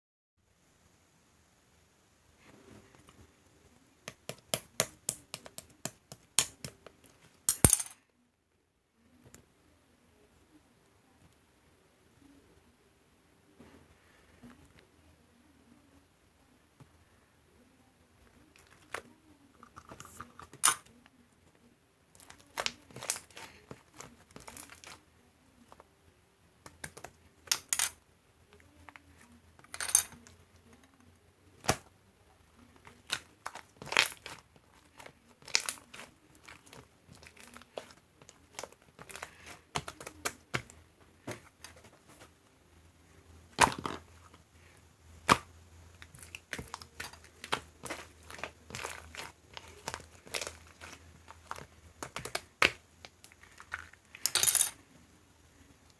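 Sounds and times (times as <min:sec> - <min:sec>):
crinkling and crackling: 0:18.2 - 0:25.9, 0:28.5 - 0:42.6, 0:43.4 - 0:54.9.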